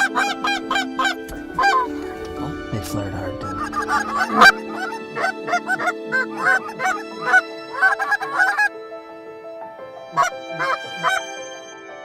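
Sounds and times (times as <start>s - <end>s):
goose honking and clucking: 0.0s - 2.2s, 3.0s - 8.7s, 10.1s - 11.3s
soft background music: 0.0s - 12.0s.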